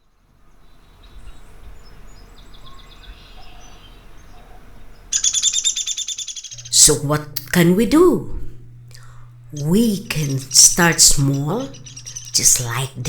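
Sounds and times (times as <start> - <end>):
loud rapid bird trill: 5.0 - 7.1, 9.6 - 13.0
soft high bird notes: 6.5 - 13.0.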